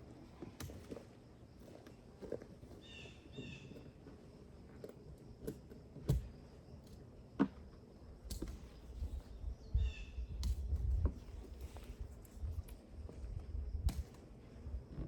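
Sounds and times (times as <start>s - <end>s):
wind rumble on microphone: 8.8s - 15.0s.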